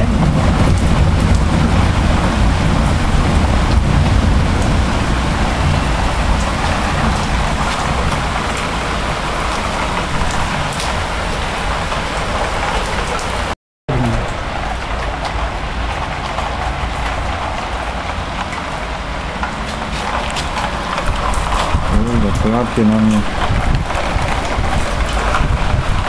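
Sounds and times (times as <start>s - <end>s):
heavy rain pouring: 0.0s - 26.0s
deep low rumble: 13.9s - 26.0s.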